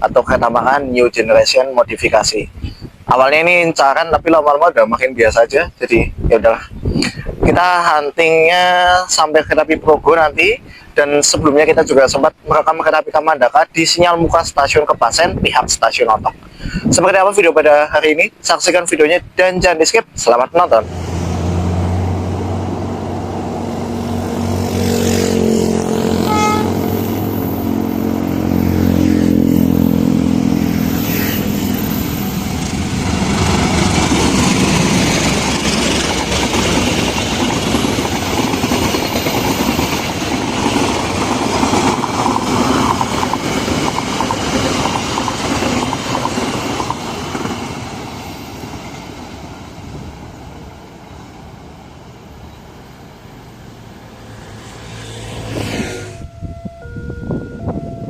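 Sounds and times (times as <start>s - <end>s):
diesel locomotive engine: 20.1s - 58.0s
train wheels clattering on rails: 32.6s - 49.5s.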